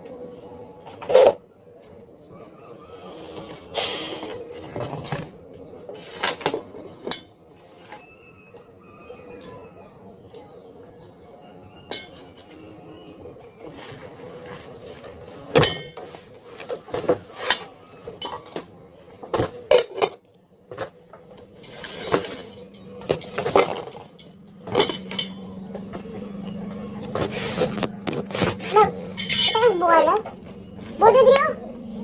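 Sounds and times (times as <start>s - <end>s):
utensils clinking against dishes: 6.0s - 8.2s, 11.9s - 12.7s, 15.5s - 18.7s, 21.5s - 31.4s.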